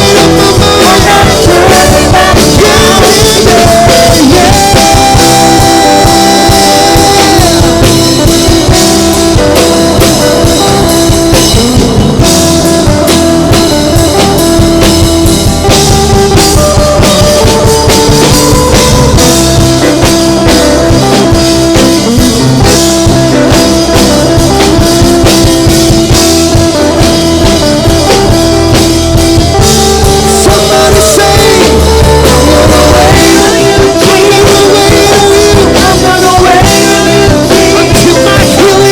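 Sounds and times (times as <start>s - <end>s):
singing: 0.0s - 8.1s, 30.2s - 38.9s
band playing drums and guitar: 0.0s - 38.9s.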